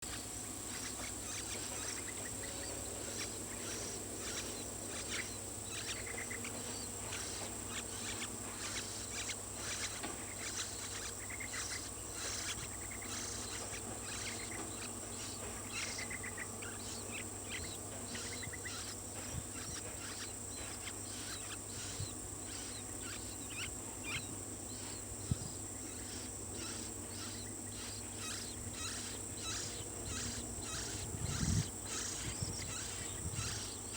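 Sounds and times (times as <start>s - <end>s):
bird chick begging chirps: 0.0s - 33.9s
high insect drone: 0.1s - 33.9s.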